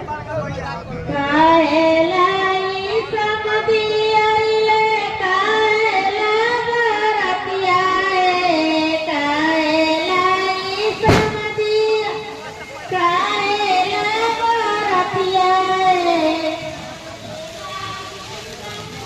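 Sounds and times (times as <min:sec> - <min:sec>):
woman singing unaccompanied: 0:01.1 - 0:16.8
sharp knock: 0:11.0 - 0:11.5.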